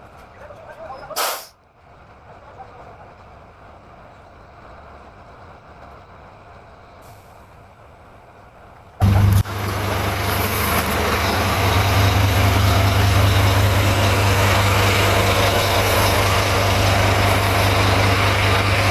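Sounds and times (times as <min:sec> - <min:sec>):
diesel truck engine running: 0:09.0 - 0:18.9.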